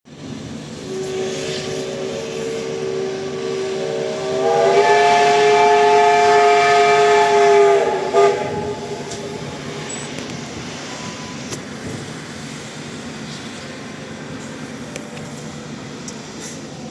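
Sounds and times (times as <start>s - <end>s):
steam locomotive whistle: 0.7s - 11.6s.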